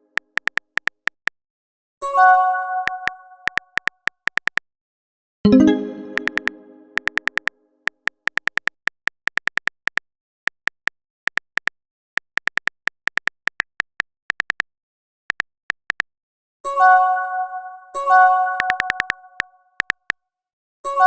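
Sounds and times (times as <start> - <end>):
keyboard typing clicks: 0.1 - 1.4, 2.8 - 4.6, 5.5 - 14.7, 15.3 - 16.1, 18.6 - 20.2
chime: 5.5 - 7.0.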